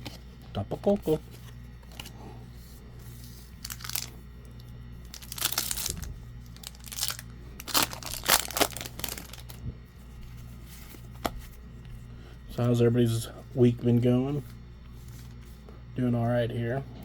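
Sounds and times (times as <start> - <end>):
foil wrapper crinkling and tearing: 3.6 - 4.2, 5.0 - 9.6.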